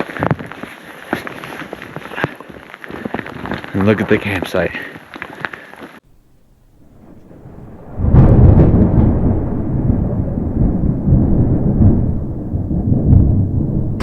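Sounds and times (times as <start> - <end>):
thunder crackles: 6.2 - 14.0
thunder rumbling: 6.2 - 14.0.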